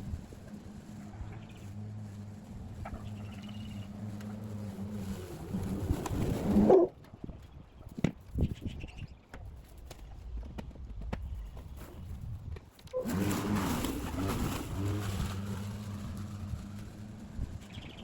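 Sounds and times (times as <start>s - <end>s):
battery lawn mower humming: 0.0s - 6.9s, 13.0s - 18.0s.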